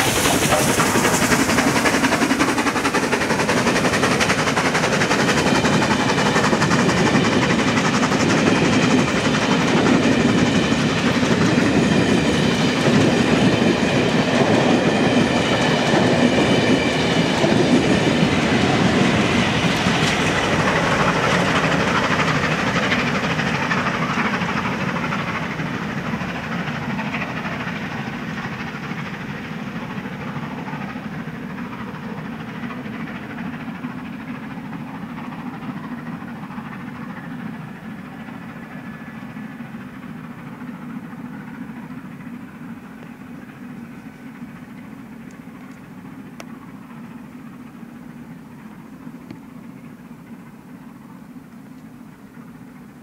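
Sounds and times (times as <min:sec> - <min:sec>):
train wheels running on rails: 0:00.0 - 0:53.0.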